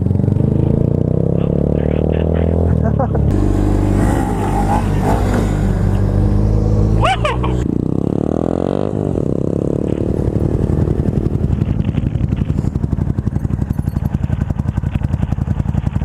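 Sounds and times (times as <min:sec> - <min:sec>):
motorcycle engine idling: 0:09.9 - 0:16.0.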